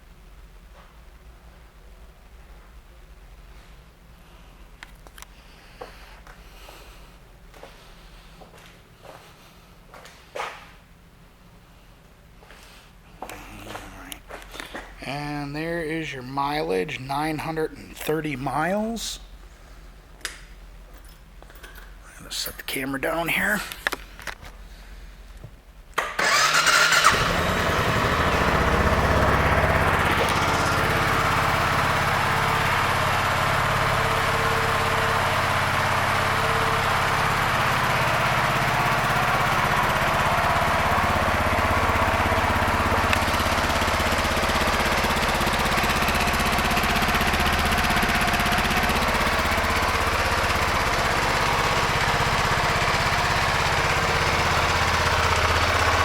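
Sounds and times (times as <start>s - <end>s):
motorcycle engine idling: 26.2s - 56.0s.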